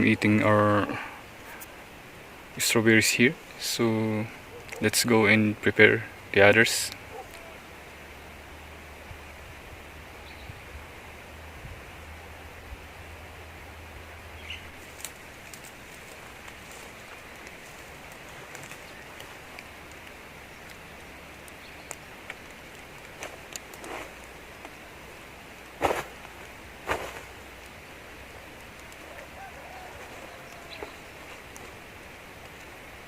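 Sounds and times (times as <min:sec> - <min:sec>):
outdoor background hiss: 0:00.0 - 0:33.0
light clicks and rustles: 0:14.8 - 0:24.8.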